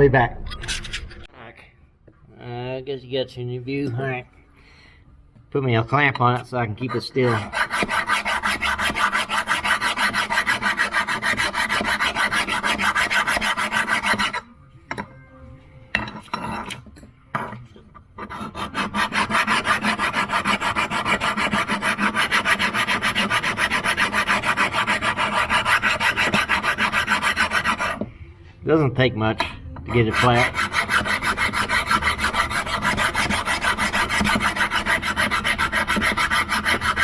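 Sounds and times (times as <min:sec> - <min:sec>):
metal rasping by hand: 0:06.8 - 0:14.5, 0:18.2 - 0:28.1, 0:29.9 - 0:37.0.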